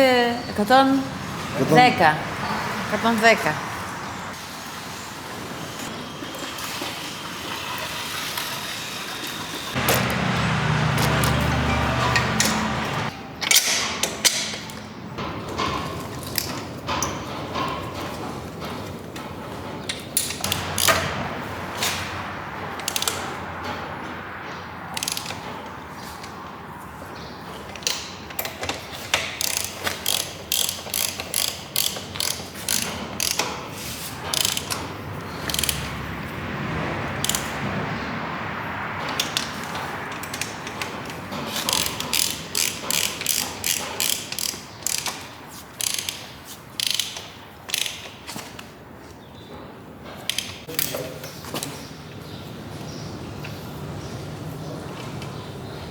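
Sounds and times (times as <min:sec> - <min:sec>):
ratchet wrench clicking: 0:20.2 - 0:21.1, 0:25.0 - 0:25.4, 0:29.1 - 0:33.6, 0:34.3 - 0:36.0, 0:37.2 - 0:37.5, 0:41.6 - 0:45.2, 0:45.8 - 0:48.1.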